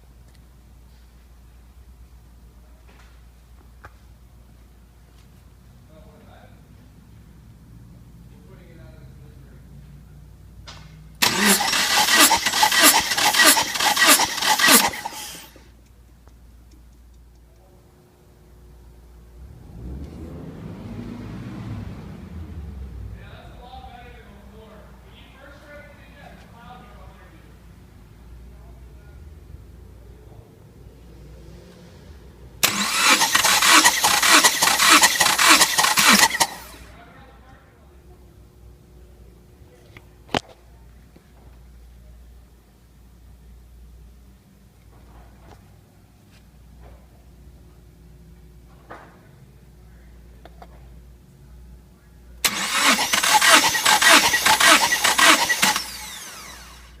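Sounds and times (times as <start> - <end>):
engine starter cranking: 11.2 - 15.7, 32.6 - 36.9, 52.4 - 57.0.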